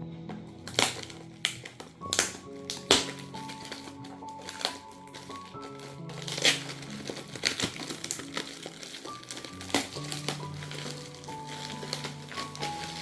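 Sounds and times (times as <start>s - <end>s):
soft background music: 0.0s - 13.0s
gift wrapping crinkling: 0.5s - 13.0s.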